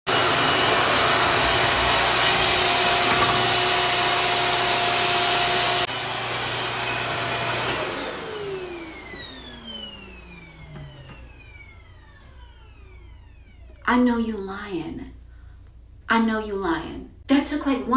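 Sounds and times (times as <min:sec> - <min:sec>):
hair dryer running: 0:00.1 - 0:13.8.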